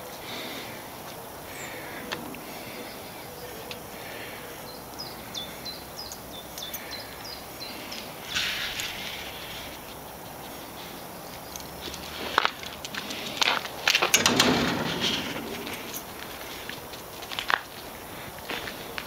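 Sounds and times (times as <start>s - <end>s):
small bird chirping: 4.6s - 12.0s.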